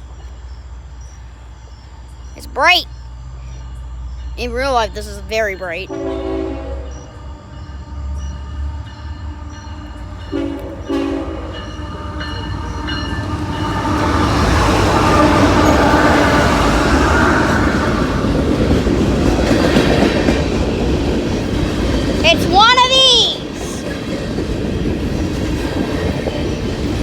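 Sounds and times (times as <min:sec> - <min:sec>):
freight train passing: 0:00.0 - 0:27.0
train horn blast: 0:05.9 - 0:07.2, 0:10.2 - 0:12.4.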